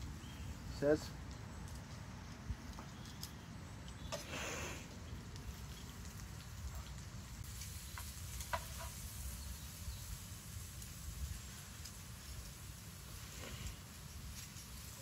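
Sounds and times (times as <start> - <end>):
food frying in a pan: 5.5 - 15.0.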